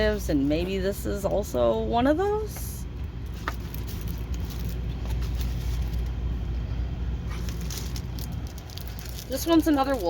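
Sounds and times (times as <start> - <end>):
steady low hum: 0.0 - 10.0
packaging rustling and clicking: 3.2 - 6.2, 7.3 - 10.0.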